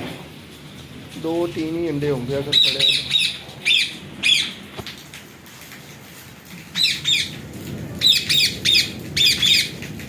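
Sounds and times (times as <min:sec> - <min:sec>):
parrots screeching: 0:02.6 - 0:04.6, 0:06.8 - 0:07.3.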